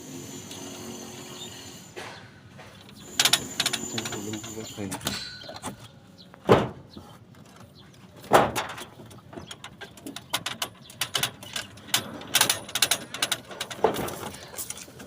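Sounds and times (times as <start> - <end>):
loud short thumps: 6.4 - 6.9.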